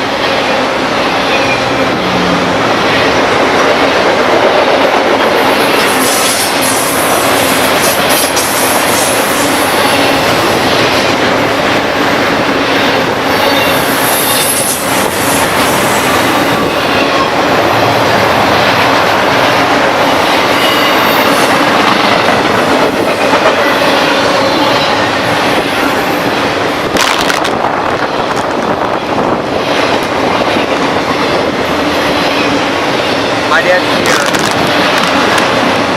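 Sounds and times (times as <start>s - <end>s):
train rumbling on track: 0.0s - 35.9s.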